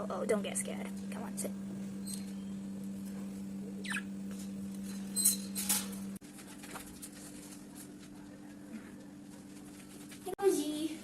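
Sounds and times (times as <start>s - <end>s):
steady low hum: 0.0s - 11.0s
budgerigars chirping: 3.8s - 4.1s.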